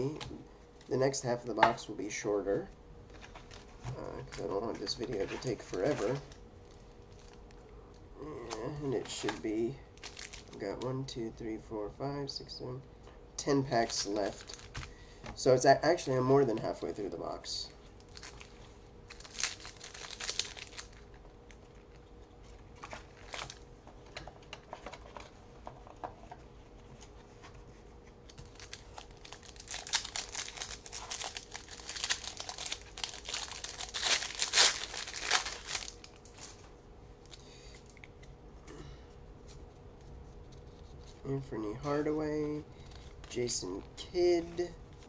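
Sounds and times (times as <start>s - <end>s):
wrapper tearing and crinkling: 3.2s - 7.5s, 8.4s - 10.6s, 13.8s - 14.9s, 18.0s - 22.0s, 22.8s - 23.6s, 28.3s - 36.6s.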